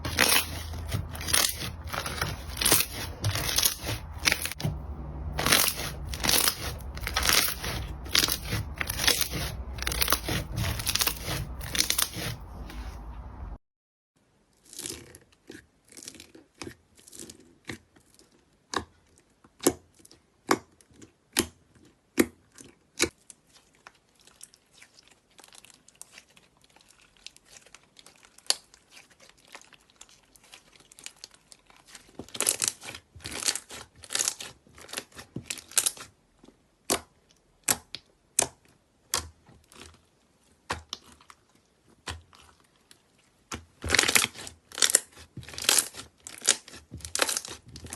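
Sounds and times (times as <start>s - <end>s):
slime popping and crackling: 0.0s - 4.8s, 5.4s - 12.4s, 43.5s - 47.9s.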